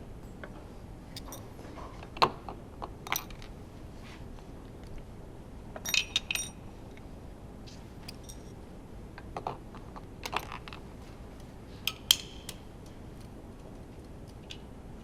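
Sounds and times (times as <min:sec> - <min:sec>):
metallic clicks of tools: 0:00.5 - 0:01.5, 0:11.9 - 0:12.6
ringing clinks: 0:05.8 - 0:06.6, 0:08.1 - 0:08.6.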